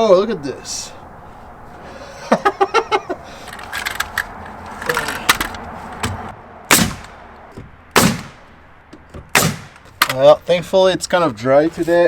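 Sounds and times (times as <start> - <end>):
nail gun firing: 6.7 - 7.2, 8.0 - 8.4, 9.4 - 10.2
wood and metal knocks: 6.9 - 8.3, 8.9 - 10.2.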